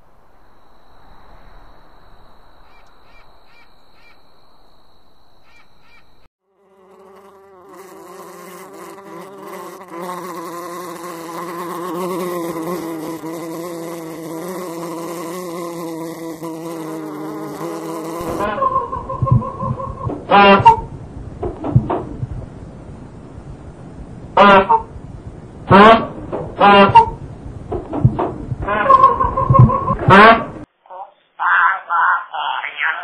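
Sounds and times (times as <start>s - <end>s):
faint high whine with chirps: 0.0s - 6.3s
wasp buzzing in flight: 6.5s - 19.6s.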